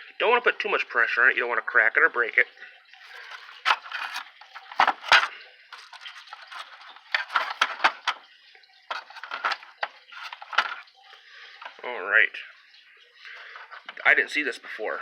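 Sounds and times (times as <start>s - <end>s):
hands working vacuum cleaner parts: 3.1s - 8.2s, 8.9s - 10.8s.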